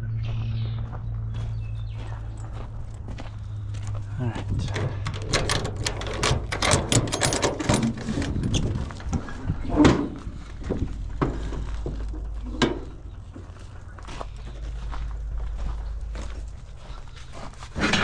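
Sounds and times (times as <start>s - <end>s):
steady low hum: 0.0s - 18.0s
objects knocking and clanking: 4.5s - 13.5s, 17.8s - 18.0s.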